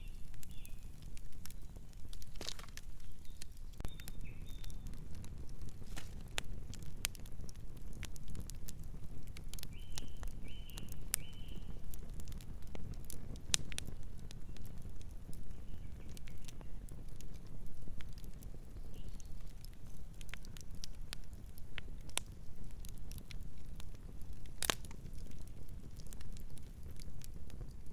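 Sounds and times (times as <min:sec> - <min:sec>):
bird chirping: 0:00.0 - 0:00.9, 0:03.0 - 0:04.8
wood fire crackling and popping: 0:00.0 - 0:27.9.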